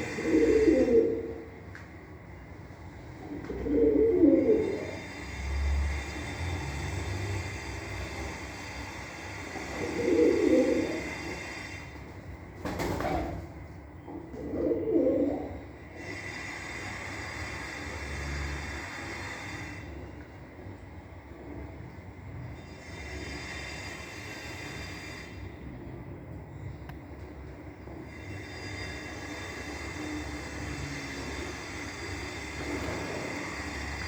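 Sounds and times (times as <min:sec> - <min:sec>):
pigeons cooing: 0:00.0 - 0:01.7, 0:03.2 - 0:05.1, 0:09.6 - 0:11.5, 0:13.0 - 0:15.8
faint high hum: 0:00.0 - 0:34.0.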